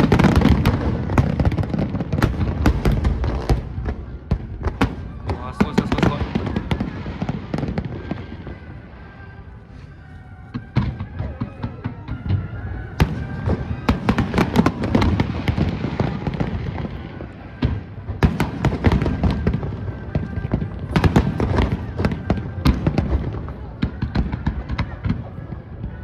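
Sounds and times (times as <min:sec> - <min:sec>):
fireworks bursting: 0:00.0 - 0:26.0
music: 0:00.0 - 0:26.0.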